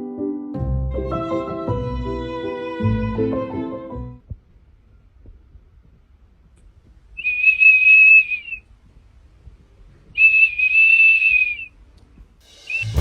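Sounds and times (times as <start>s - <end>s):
long high whistles: 7.2s - 8.7s, 10.2s - 11.8s, 12.7s - 13.0s.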